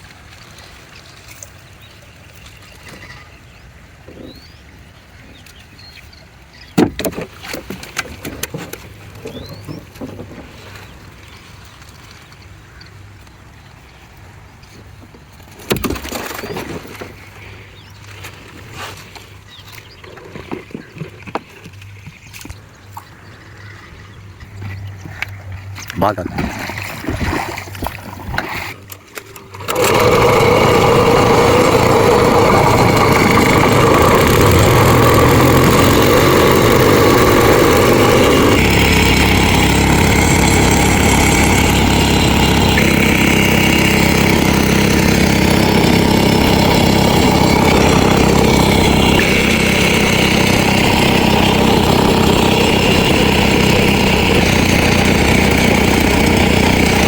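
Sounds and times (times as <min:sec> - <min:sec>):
small engine running: 0:23.4 - 0:57.0.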